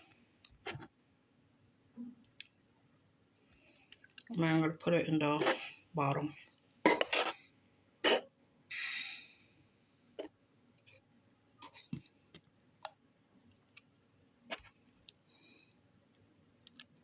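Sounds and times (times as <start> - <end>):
slime squelch: 0.0 - 1.0, 3.5 - 8.3, 14.5 - 15.3
small clicks and pops: 14.5 - 17.0.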